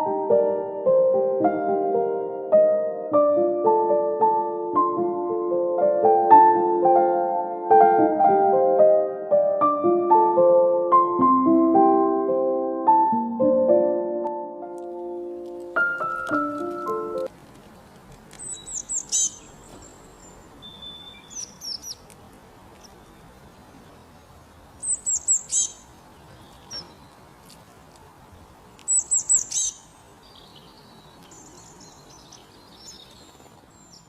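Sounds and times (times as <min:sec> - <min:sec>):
small songbird singing: 0:18.4 - 0:22.1, 0:24.8 - 0:27.2, 0:28.8 - 0:34.0
soft bird calls: 0:18.4 - 0:22.1, 0:24.8 - 0:34.0.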